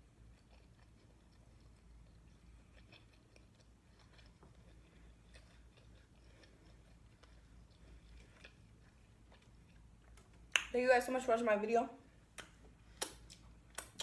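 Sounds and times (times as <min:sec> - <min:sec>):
person chewing: 0:00.0 - 0:10.6, 0:12.3 - 0:14.0
mouth clicks and smacks: 0:12.3 - 0:14.0.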